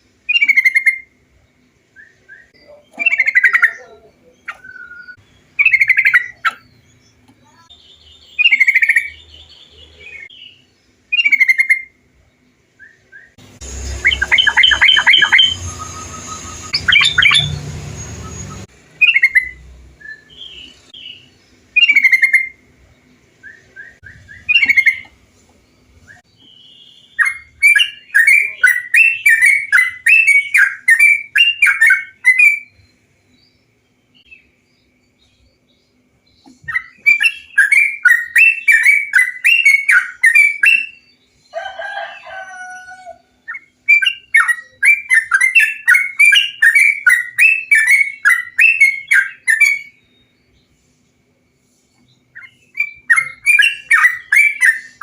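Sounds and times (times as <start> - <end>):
bird song bubbly phrases: 2.4 - 6.8, 13.9 - 17.6, 26.5 - 32.7
bird rapid chattering notes: 2.7 - 6.9, 13.6 - 19.6, 20.2 - 22.6, 23.6 - 25.2.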